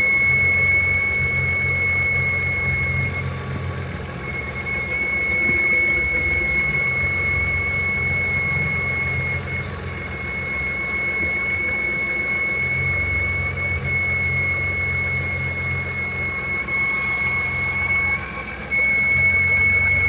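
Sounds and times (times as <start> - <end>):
high-pitched squeal: 4.0 - 20.0.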